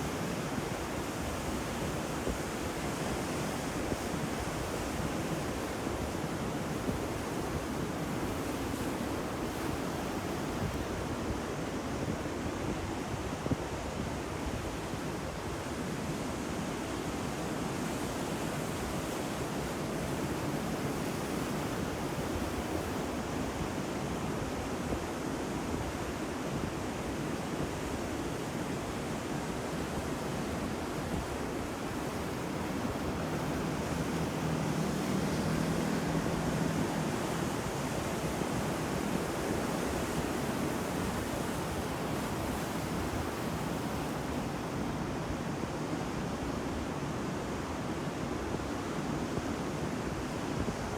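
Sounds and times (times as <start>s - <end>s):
ocean waves breaking: 29.8s - 45.5s.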